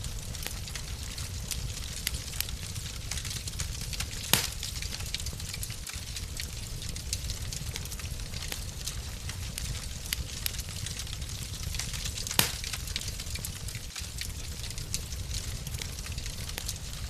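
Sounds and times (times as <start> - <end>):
fire crackles: 0.0 - 17.0
fire rumbling in fireplace: 0.0 - 17.0
loud fire pop: 4.2 - 4.8, 12.3 - 12.8.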